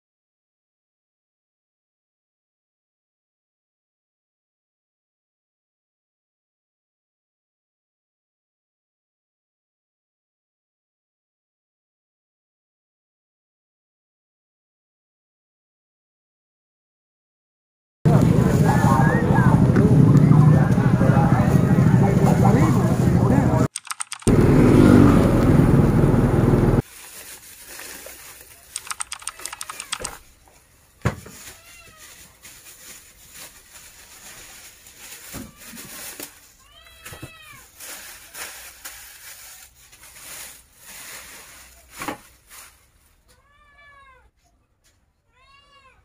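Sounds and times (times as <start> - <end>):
cat meowing: 29.3 - 30.2, 45.3 - 46.0.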